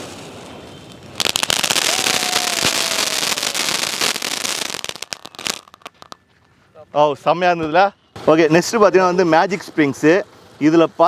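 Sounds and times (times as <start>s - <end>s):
fireworks crackling: 0.0s - 6.2s.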